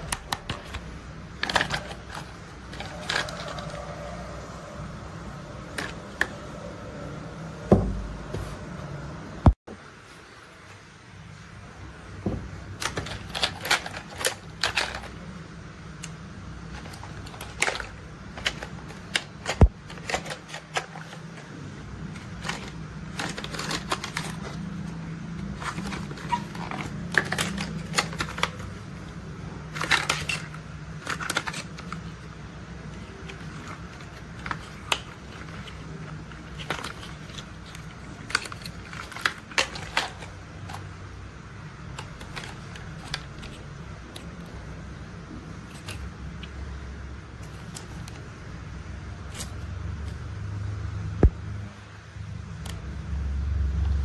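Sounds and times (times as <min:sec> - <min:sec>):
plastic toy parts clicking: 0:00.0 - 0:04.0, 0:12.7 - 0:15.2, 0:16.0 - 0:21.4, 0:22.1 - 0:28.8, 0:29.7 - 0:32.3, 0:32.9 - 0:40.9.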